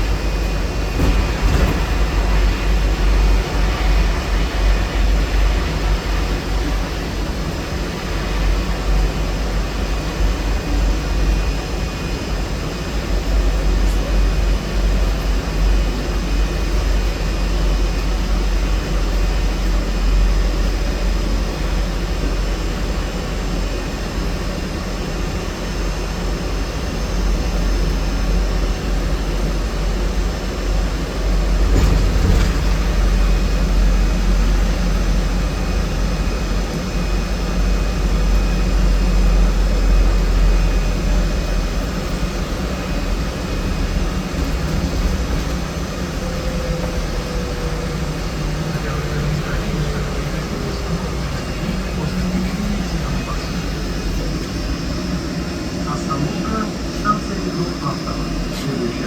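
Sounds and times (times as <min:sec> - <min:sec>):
trolleybus cabin rumble: 0:00.0 - 0:59.0
vehicle jolt: 0:00.2 - 0:03.1, 0:31.4 - 0:34.0
faint whining tones: 0:28.6 - 0:59.0.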